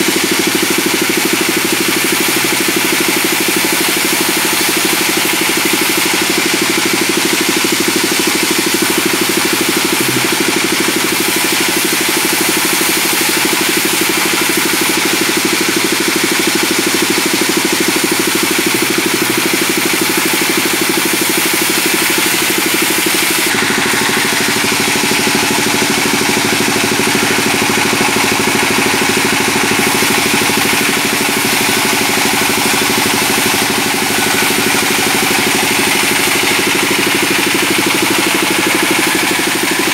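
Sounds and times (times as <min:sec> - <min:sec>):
band saw cutting wood: 0:00.0 - 0:39.9
deep hum: 0:09.9 - 0:10.9.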